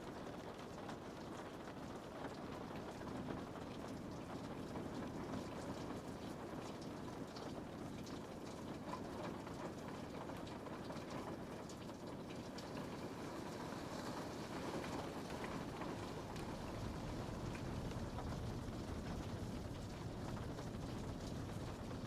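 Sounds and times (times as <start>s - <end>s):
rain on a window pane: 0.0s - 22.0s.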